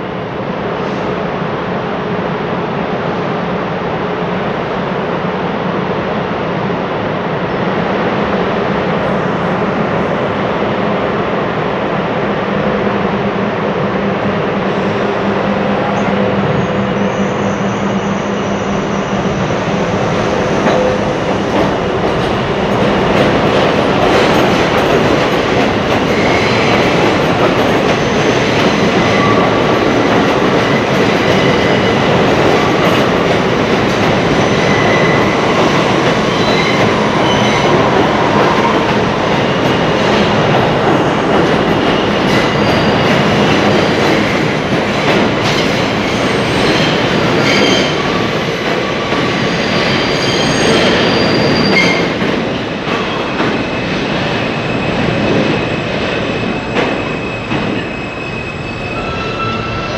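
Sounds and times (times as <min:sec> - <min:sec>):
train wheels rumbling on track: 0:00.0 - 0:59.9
clickety-clack of rails: 0:19.4 - 0:58.0
high-pitched wheel squeals: 0:49.7 - 0:52.1, 0:56.4 - 0:59.9.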